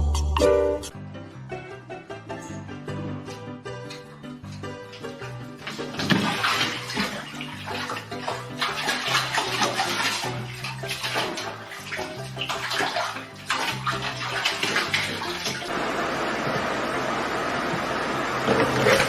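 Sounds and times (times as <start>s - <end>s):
background music: 0.0s - 15.7s
water splashing: 5.6s - 15.9s.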